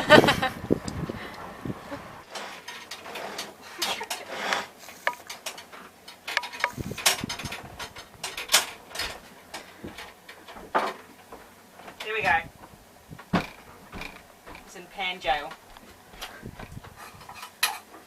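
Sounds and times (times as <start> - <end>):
pots and pans clattering: 2.3 - 12.1, 16.2 - 18.0.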